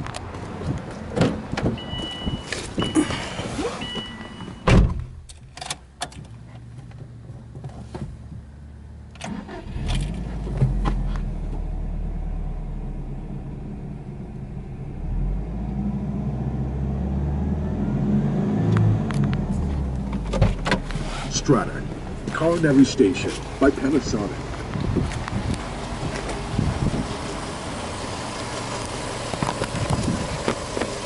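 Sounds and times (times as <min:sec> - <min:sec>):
car engine starting and idling: 0:00.0 - 0:31.0
car door shutting: 0:01.2 - 0:06.3, 0:19.7 - 0:21.5
electronic warning chime beeping: 0:01.8 - 0:04.7.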